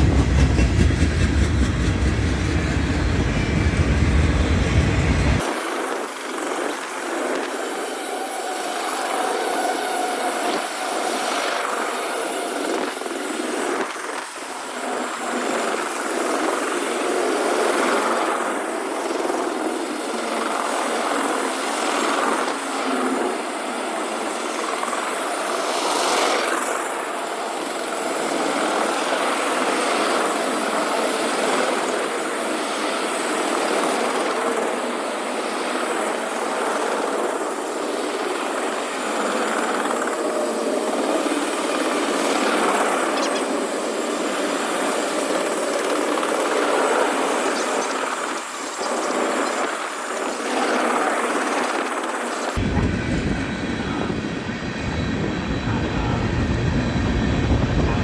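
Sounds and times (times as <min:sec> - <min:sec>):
freight train wheels on rail: 0:00.0 - 0:05.5.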